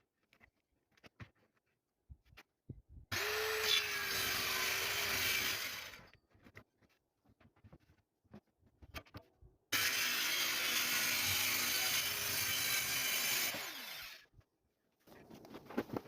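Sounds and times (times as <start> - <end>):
electric power tool running: 3.1 - 6.0, 9.8 - 14.2.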